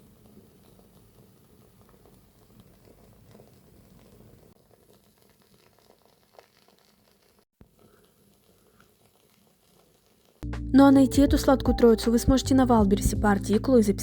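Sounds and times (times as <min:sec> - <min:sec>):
candle wick crackling: 0:00.0 - 0:10.4
candle wick popping: 0:01.9 - 0:10.4.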